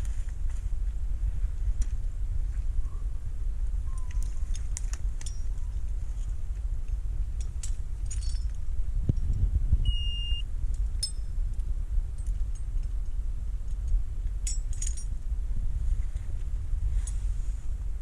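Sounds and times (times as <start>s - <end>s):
metallic clinks and jingles: 3.8s - 9.4s, 10.7s - 15.3s
short electronic beep: 9.9s - 10.4s.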